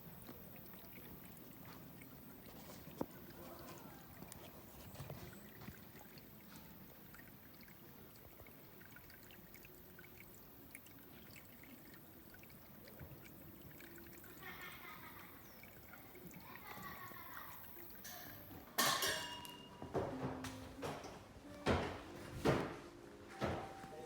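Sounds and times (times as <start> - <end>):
water trickling: 0.0 - 19.7.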